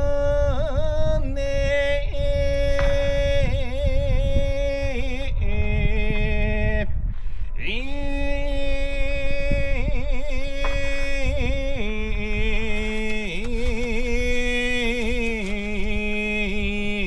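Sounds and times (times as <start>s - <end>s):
man singing unaccompanied: 7.6s - 17.0s.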